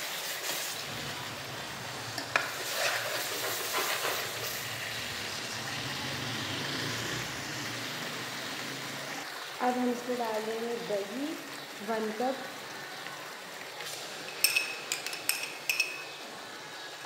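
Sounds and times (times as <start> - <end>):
masala sizzling in a wok: 0.0 - 17.0
metal spoon stirring and scraping: 2.2 - 4.6, 14.3 - 16.2.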